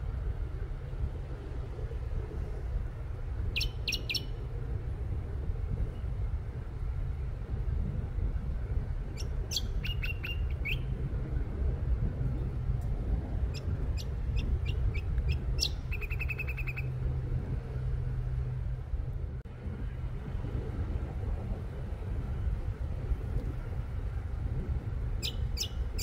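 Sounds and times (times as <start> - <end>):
bird singing whistled notes: 3.6 - 4.4, 9.2 - 10.9, 14.0 - 16.9, 25.2 - 26.0.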